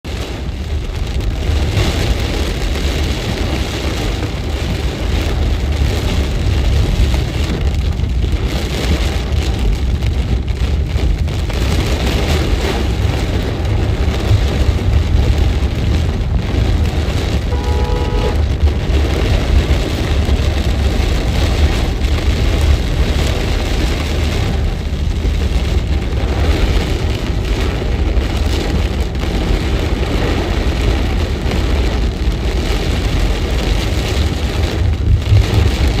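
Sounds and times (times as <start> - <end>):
heavy rain: 0.0 - 36.0
constant low rumble: 0.1 - 36.0
short pitched tone: 17.5 - 18.4.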